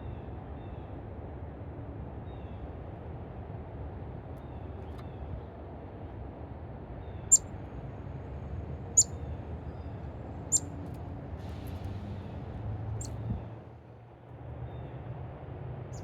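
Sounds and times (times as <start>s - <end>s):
bird chip calls: 9.0s - 9.2s.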